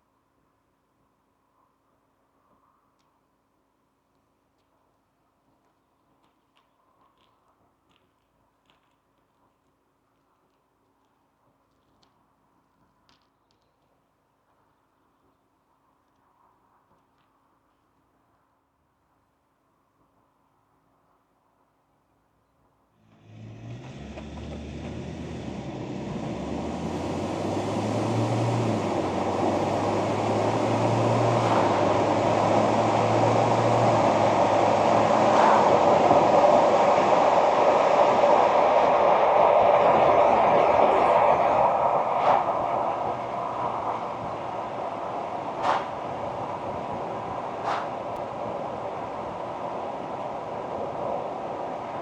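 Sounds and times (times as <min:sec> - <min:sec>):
tyre and road noise: 0:23.0 - 0:52.0
pickup engine drone: 0:23.1 - 0:52.0.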